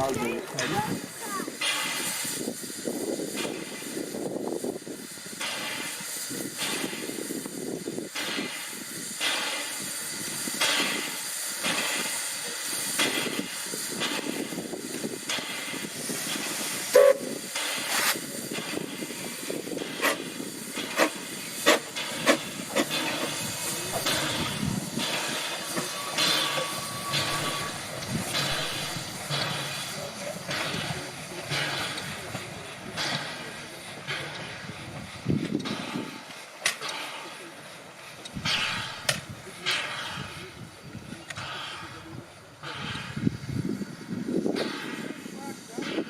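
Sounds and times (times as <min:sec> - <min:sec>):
steam locomotive hissing steam: 0:00.0 - 0:46.0
sharp metal clanks: 0:20.0 - 0:32.4.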